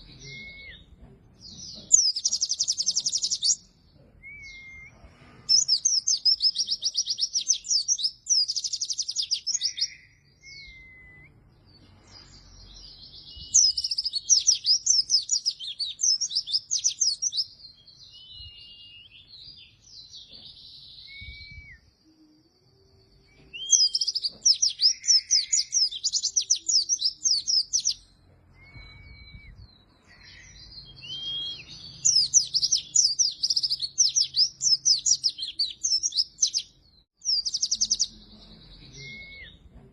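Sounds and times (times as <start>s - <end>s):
bird twittering chirps: 0.0s - 4.9s, 5.5s - 22.0s, 23.0s - 39.7s
short whistled bird notes: 9.6s - 11.4s, 28.5s - 36.6s.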